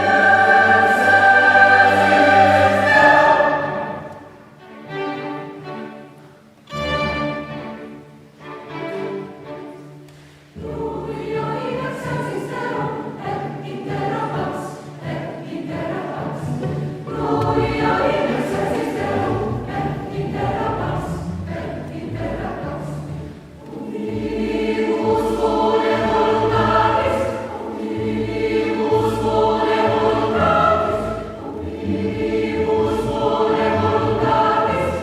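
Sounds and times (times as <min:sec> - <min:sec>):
mixed choir singing: 0:00.0 - 0:04.6, 0:10.5 - 0:35.0
chamber orchestra: 0:00.0 - 0:35.0.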